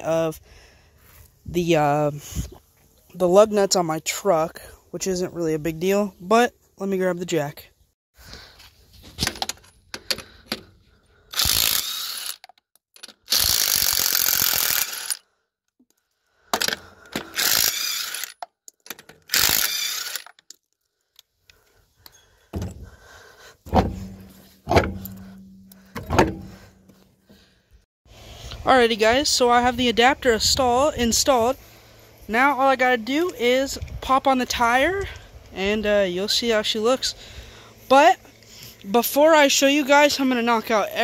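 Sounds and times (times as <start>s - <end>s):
ratchet wrench clicking: 11.3s - 15.2s, 17.3s - 20.4s
heavy thunks: 22.4s - 27.4s
hand tools clanking on metal: 23.7s - 26.9s.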